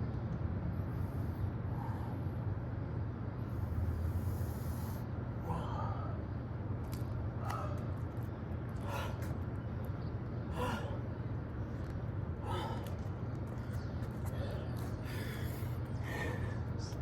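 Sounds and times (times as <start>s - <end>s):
steady low hum: 0.0s - 17.0s
man breathing forcefully: 3.5s - 6.3s, 10.5s - 11.1s, 12.4s - 13.0s, 14.4s - 16.8s.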